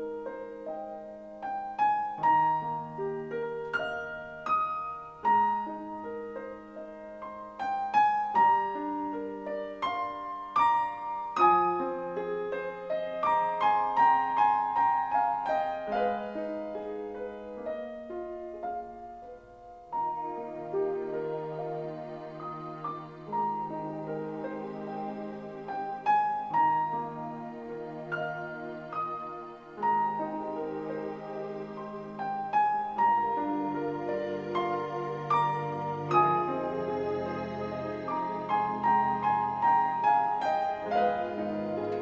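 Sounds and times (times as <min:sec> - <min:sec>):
gentle solo piano: 0:00.0 - 0:42.0.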